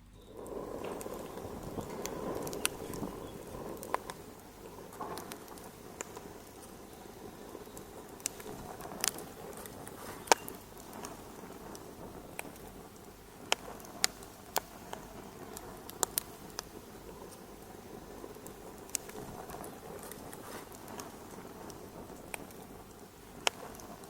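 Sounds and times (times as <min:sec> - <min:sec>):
fireplace fire crackling: 0:00.0 - 0:24.0
sharp pops: 0:00.0 - 0:24.0.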